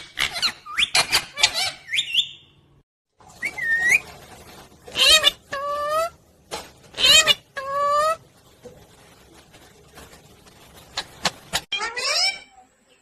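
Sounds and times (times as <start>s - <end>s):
parrot whistled calls: 0.3s - 2.6s, 3.4s - 4.0s
parrot harsh calls: 4.9s - 6.2s, 7.0s - 8.2s, 11.6s - 12.5s.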